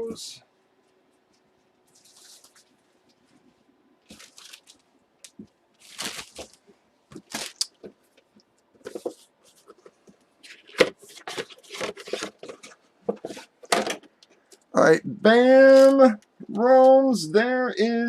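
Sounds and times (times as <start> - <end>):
plastic bags rustling: 1.2 - 8.0, 8.8 - 14.1.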